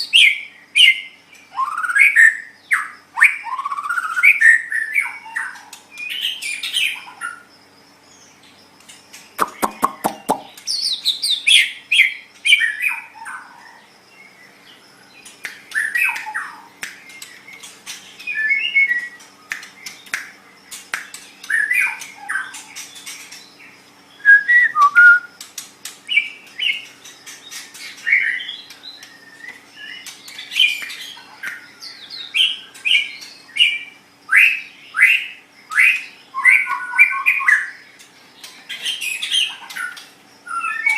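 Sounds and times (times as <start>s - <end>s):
songbird singing: 0.0s - 40.9s
rattle of sharp clicks: 19.2s - 22.2s, 25.4s - 28.0s.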